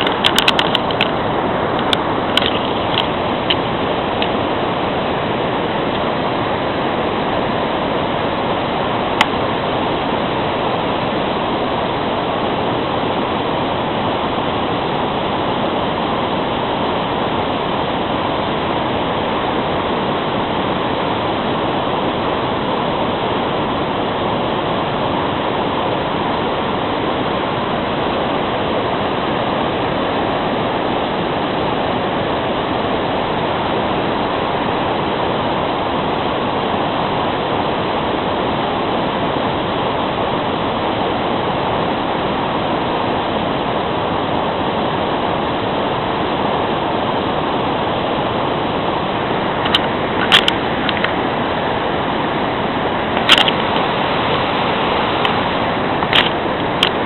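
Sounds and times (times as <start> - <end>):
small clicks: 0.0 - 3.6, 49.6 - 51.2, 53.2 - 53.9, 56.0 - 57.0
waterfall rushing: 0.0 - 57.0.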